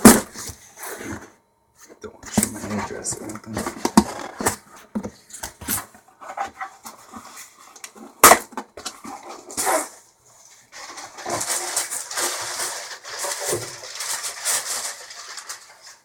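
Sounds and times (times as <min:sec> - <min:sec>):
packing material rustling: 0:10.6 - 0:16.0.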